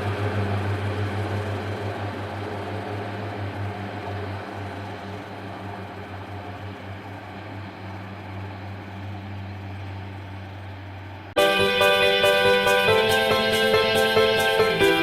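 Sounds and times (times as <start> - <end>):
train diesel engine droning: 0.0 - 15.0
music: 11.4 - 15.0.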